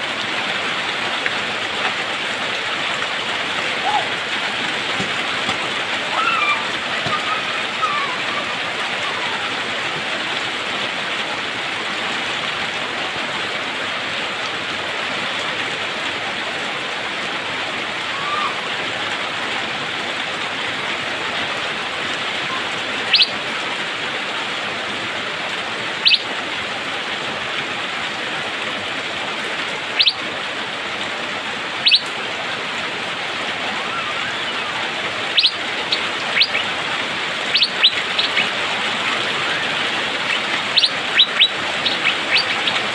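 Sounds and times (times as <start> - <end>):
steady rain: 0.0 - 42.9.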